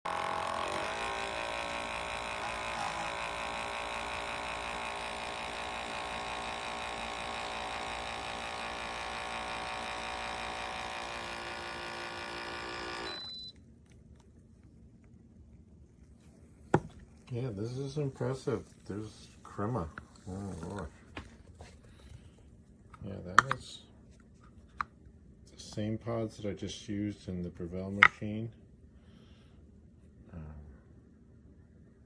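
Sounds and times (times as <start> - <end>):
espresso maker pump buzzing: 0.0 - 13.5.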